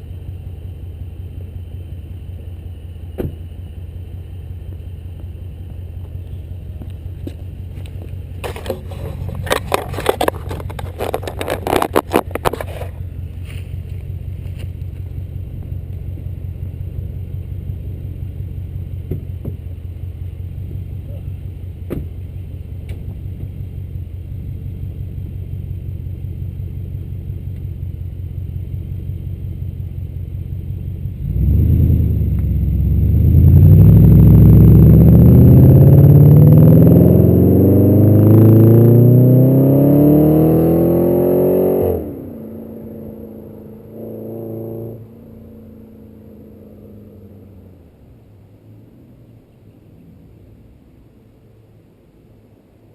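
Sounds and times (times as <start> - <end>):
car engine idling and revving: 0.0 - 52.9
scraping crackling noise: 7.8 - 15.0.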